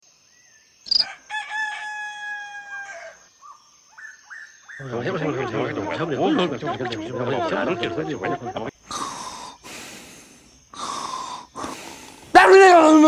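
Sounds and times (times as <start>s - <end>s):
rooster crowing: 0.9s - 3.3s, 4.8s - 8.7s
loud voice: 4.8s - 8.7s, 12.3s - 13.0s.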